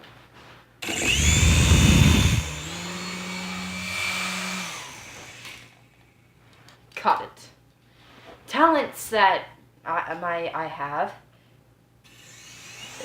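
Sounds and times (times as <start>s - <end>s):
toy helicopter motors whining: 0.8s - 5.8s, 12.1s - 13.0s
rotor downwash buffeting microphone: 1.1s - 2.8s.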